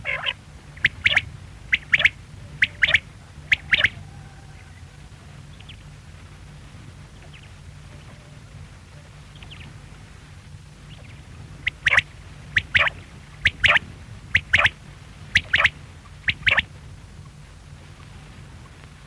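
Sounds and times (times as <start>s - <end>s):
quail calling: 0.0s - 4.8s, 10.9s - 16.7s
steady low hum: 0.0s - 19.0s.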